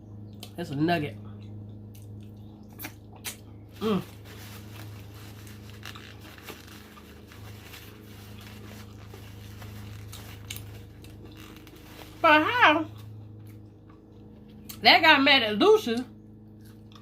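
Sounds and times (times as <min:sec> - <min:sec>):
steady low hum: 0:00.0 - 0:17.0
person chewing with wet smacks: 0:01.2 - 0:03.7, 0:13.0 - 0:14.8, 0:16.5 - 0:17.0
person humming: 0:03.8 - 0:04.2.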